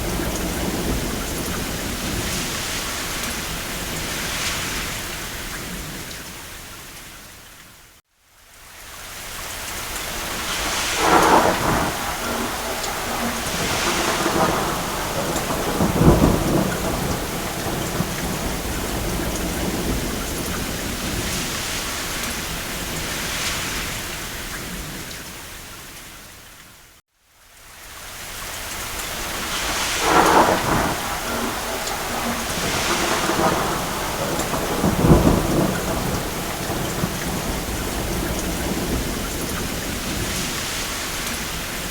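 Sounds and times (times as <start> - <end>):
thunder rumbling: 0.0 - 6.1, 10.0 - 25.2, 28.9 - 41.9
rain on a roof: 0.0 - 41.9.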